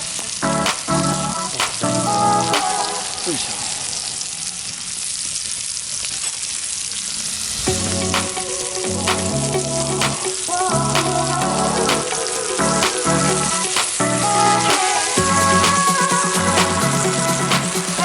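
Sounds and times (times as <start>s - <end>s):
background music: 0.0s - 3.6s, 7.4s - 18.0s
food sizzling in a pan: 2.7s - 8.8s.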